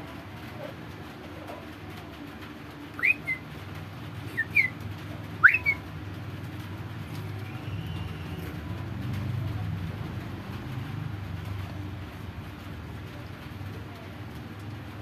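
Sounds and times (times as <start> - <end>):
low background hum: 0.0 - 15.0
bird whistling calls: 3.0 - 3.4, 4.3 - 4.8, 5.4 - 5.8.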